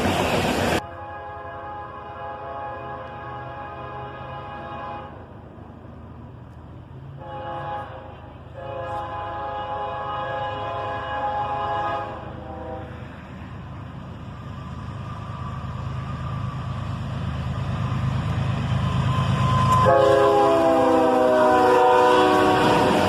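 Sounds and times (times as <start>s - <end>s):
diesel train rumble: 0.0s - 23.0s
locomotive air horn: 0.8s - 5.3s, 7.1s - 13.1s, 19.1s - 23.0s.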